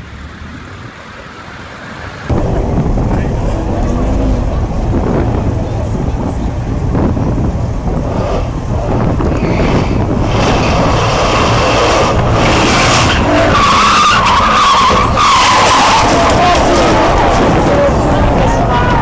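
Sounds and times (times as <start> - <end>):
car engine running hard: 2.2 - 19.0
tyres squealing: 12.9 - 17.1.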